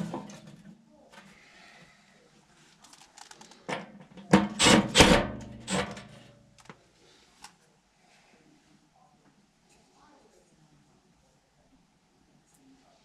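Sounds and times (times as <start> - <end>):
metal parts clanking and scraping: 4.3 - 6.3.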